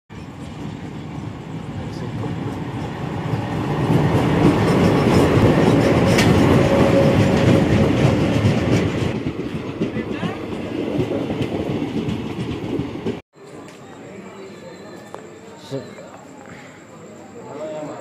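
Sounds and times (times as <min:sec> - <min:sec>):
train wheels clattering on rails: 0:00.1 - 0:13.2.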